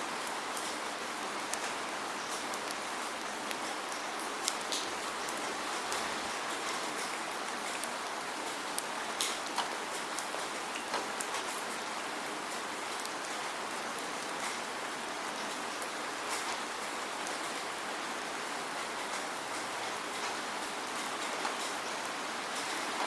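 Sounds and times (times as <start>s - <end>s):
steady rain hissing: 0.0s - 23.0s
raindrops ticking: 0.2s - 17.8s.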